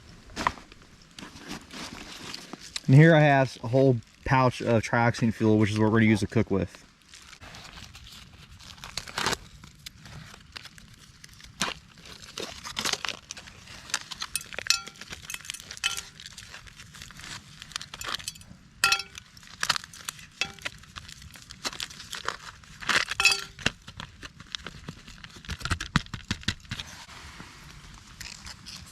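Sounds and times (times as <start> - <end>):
packaging crinkling and tearing: 6.9 - 14.4, 15.0 - 18.0, 19.2 - 26.9
light metallic clinks: 14.4 - 16.2, 18.0 - 19.2, 20.4 - 20.7, 23.2 - 23.6.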